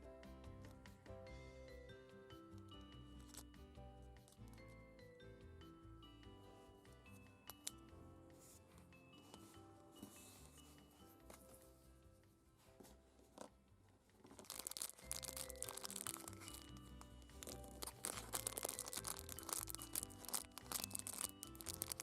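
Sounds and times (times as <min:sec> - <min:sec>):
soft background music: 0:00.0 - 0:22.0
packaging crinkling and tearing: 0:14.4 - 0:22.0.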